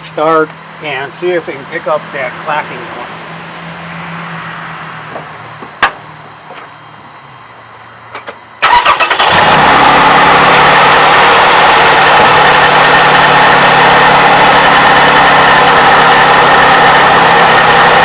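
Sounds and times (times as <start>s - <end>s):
car engine running: 0.0s - 18.0s
starter motor cranking: 8.6s - 12.7s.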